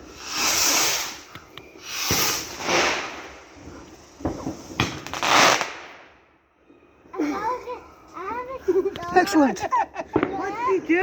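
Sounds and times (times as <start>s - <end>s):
firework hissing bursts: 0.0s - 6.1s
firework sharp cracks: 0.1s - 3.5s, 4.2s - 6.2s.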